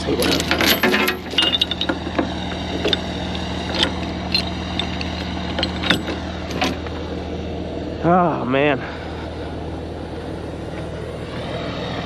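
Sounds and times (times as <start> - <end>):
diesel truck engine idling: 0.0 - 12.0
metallic clinks and knocks: 0.2 - 6.8.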